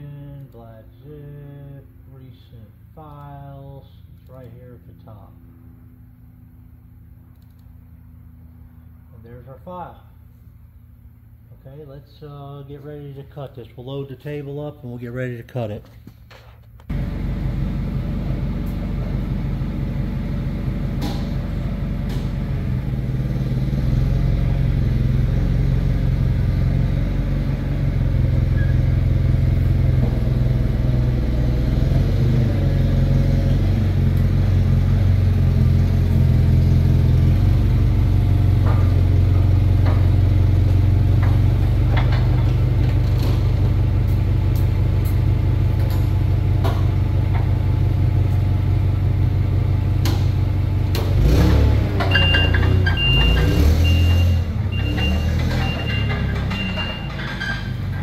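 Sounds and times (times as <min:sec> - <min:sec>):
engine running: 0:16.9 - 0:58.0.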